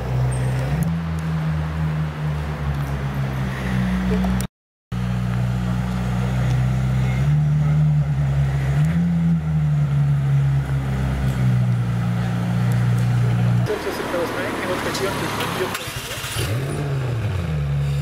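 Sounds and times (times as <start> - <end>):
car engine idling: 11.8 - 16.5.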